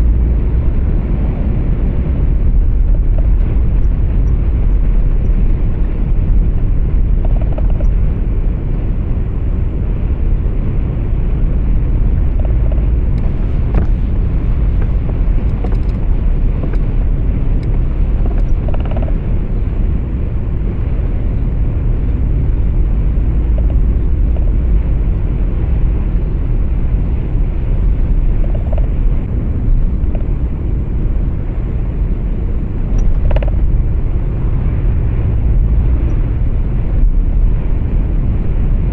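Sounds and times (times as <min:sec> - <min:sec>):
truck engine rumble: 0:00.0 - 0:38.9
faint ticks: 0:07.0 - 0:08.1, 0:12.3 - 0:19.2, 0:23.4 - 0:24.5.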